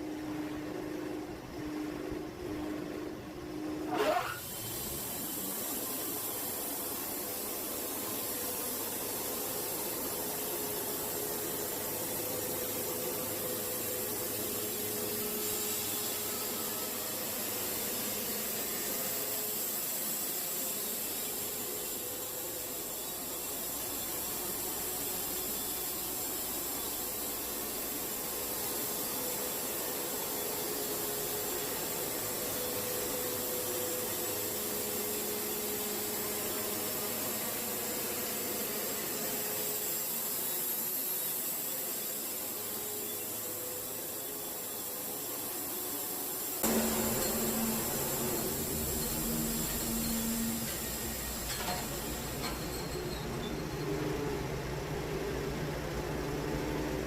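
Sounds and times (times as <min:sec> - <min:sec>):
saw blade cutting a board: 0:03.9 - 0:05.8
sawmill engine whining: 0:46.6 - 0:57.0.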